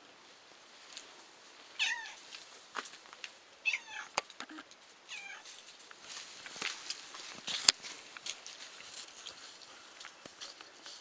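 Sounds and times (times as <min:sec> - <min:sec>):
cat meowing: 0:01.8 - 0:02.2, 0:03.7 - 0:04.2, 0:05.1 - 0:05.4.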